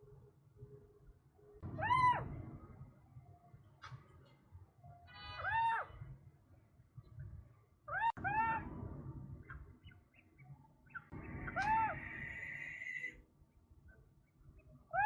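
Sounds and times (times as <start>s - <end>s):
faint low outdoor rumble: 0.0s - 15.0s
bird calling: 9.8s - 13.2s.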